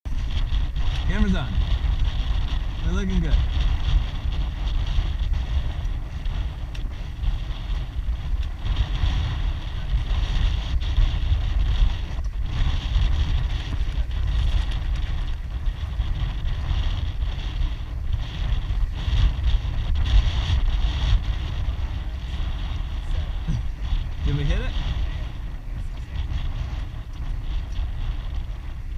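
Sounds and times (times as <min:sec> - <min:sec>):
wind buffeting microphone: 0:00.0 - 0:28.9.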